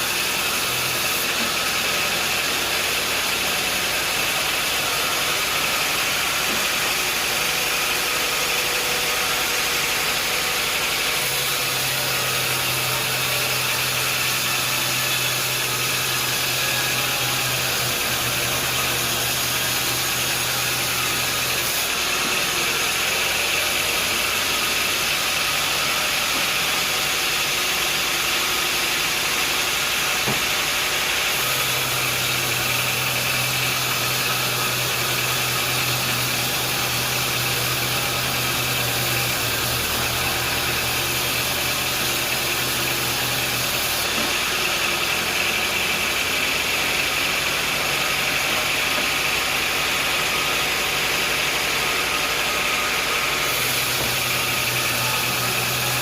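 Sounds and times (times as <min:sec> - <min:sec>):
sawmill machinery running: 0:00.0 - 0:56.0.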